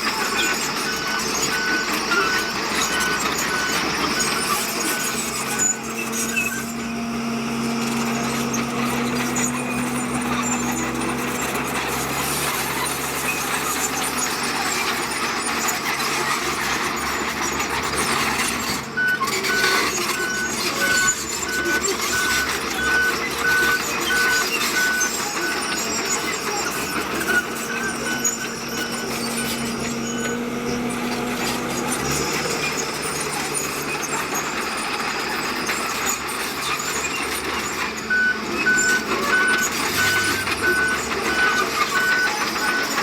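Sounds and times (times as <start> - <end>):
heavy machinery engine running: 0.0 - 43.0
reversing alarm beeping: 0.1 - 7.0, 19.0 - 36.0, 36.7 - 43.0.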